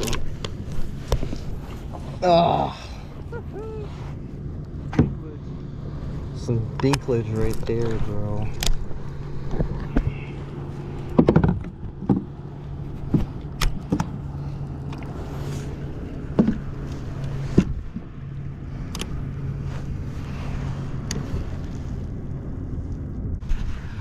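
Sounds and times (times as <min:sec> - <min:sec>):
water noise: 0:00.0 - 0:24.0
wind: 0:00.0 - 0:24.0
sharp clicks and knocks: 0:11.1 - 0:12.3, 0:13.0 - 0:14.2.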